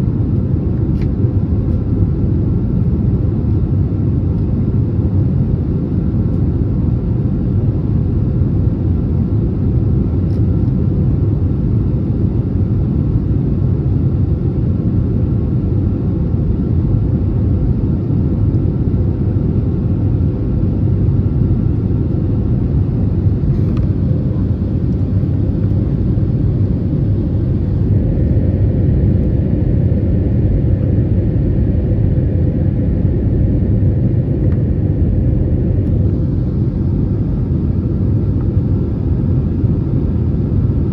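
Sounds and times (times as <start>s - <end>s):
deep rumble of engines and airflow: 0.0s - 40.9s
faint steady hum: 0.0s - 40.9s.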